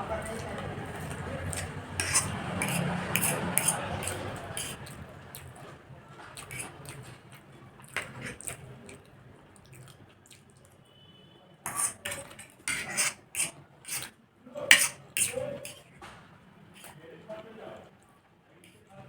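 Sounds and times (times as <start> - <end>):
loud slurps: 1.0 - 5.0, 6.4 - 7.1, 11.7 - 14.1
wet chewing and mouth smacks: 4.1 - 5.7, 6.3 - 10.8.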